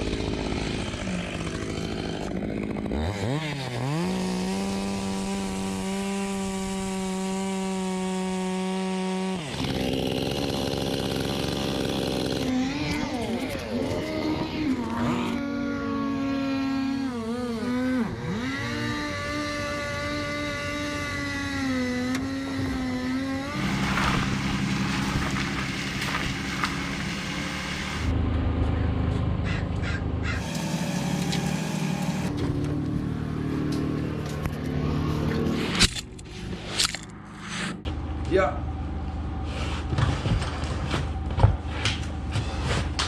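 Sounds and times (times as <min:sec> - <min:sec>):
chainsaw cutting wood: 0:00.0 - 0:28.1, 0:29.8 - 0:37.8.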